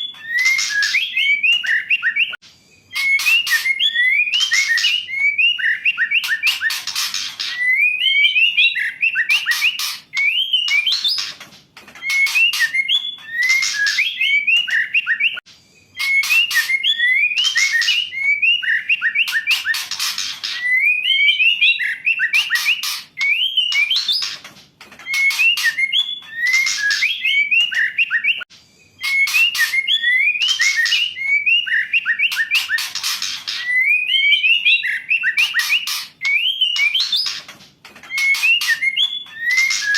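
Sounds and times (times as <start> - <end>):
bird whistled notes: 0.0 - 11.3, 12.0 - 24.4, 25.1 - 37.4, 38.1 - 39.9
bird rasping chatter: 6.2 - 7.7, 9.4 - 14.1, 19.3 - 20.8, 22.4 - 27.2, 32.3 - 33.8, 35.4 - 39.9.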